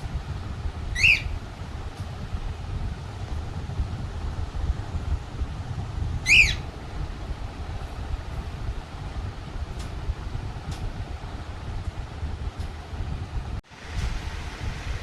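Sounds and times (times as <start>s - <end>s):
faint parrot calls: 0.9s - 1.5s, 6.2s - 6.7s
parrot squawking: 0.9s - 1.5s, 6.3s - 6.8s.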